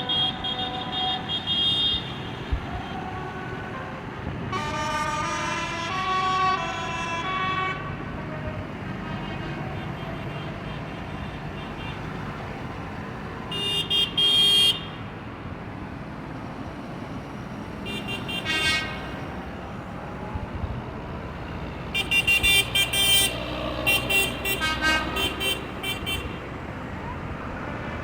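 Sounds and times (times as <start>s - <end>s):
tractor horns tooting: 0.0s - 3.7s, 4.4s - 12.7s, 13.3s - 15.1s, 17.8s - 19.4s, 21.9s - 26.6s
rumble of engines: 0.0s - 28.0s.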